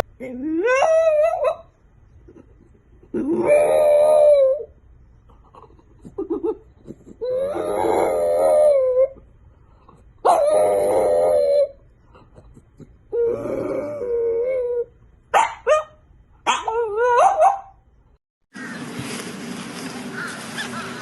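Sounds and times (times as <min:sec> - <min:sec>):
dog howling: 0:03.2 - 0:04.7, 0:07.2 - 0:09.2, 0:10.2 - 0:11.8, 0:13.1 - 0:14.9.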